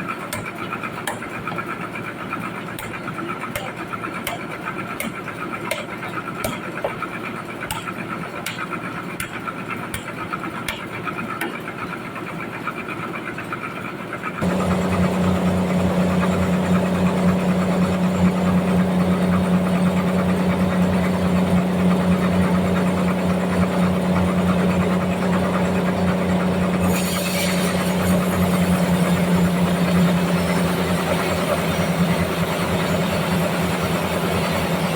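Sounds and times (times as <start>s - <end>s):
sawmill machinery humming: 14.3s - 34.9s
low engine-like drone: 14.4s - 34.9s.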